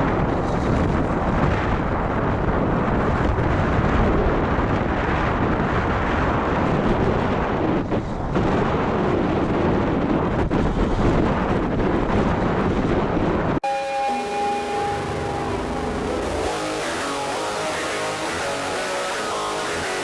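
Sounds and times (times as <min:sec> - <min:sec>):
wind buffeting microphone: 0:00.0 - 0:13.6.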